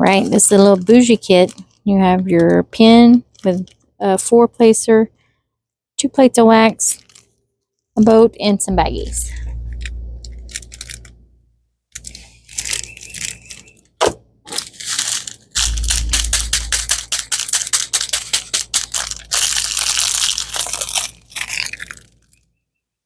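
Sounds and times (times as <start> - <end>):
plastic packaging crinkling: 0.0 - 1.8, 3.2 - 3.9, 6.9 - 7.4, 9.3 - 11.2, 12.0 - 22.5.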